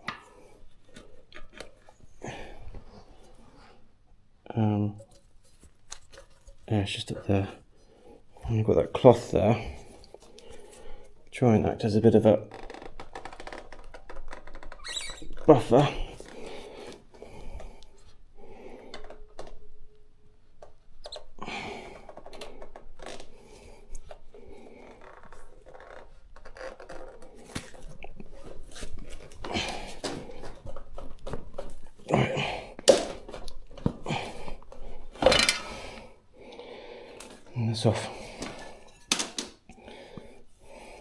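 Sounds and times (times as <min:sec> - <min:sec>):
person breathing hard: 0:02.1 - 0:03.9, 0:15.9 - 0:19.5, 0:21.4 - 0:25.1, 0:29.3 - 0:30.7, 0:32.0 - 0:32.9, 0:33.9 - 0:39.0, 0:39.7 - 0:41.0.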